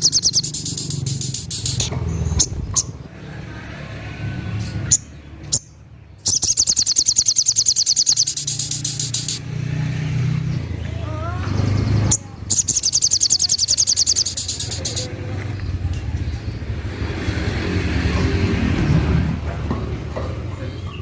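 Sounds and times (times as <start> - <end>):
bird chattering trill: 0.0 - 3.0, 4.9 - 9.4, 11.1 - 15.2
low traffic rumble: 0.0 - 21.0.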